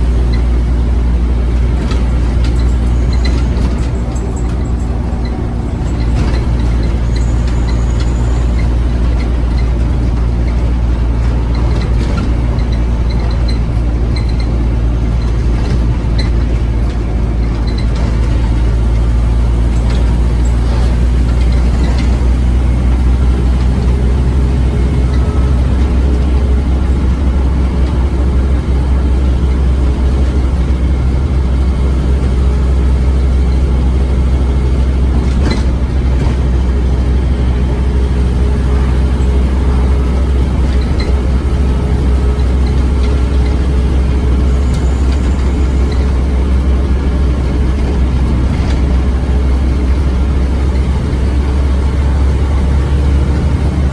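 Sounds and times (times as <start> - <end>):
bodywork rattling: 0.0 - 31.6
bus engine drone: 0.0 - 53.9.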